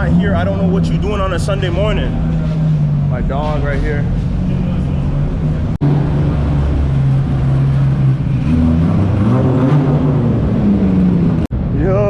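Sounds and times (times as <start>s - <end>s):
car engine idling: 0.0s - 9.4s.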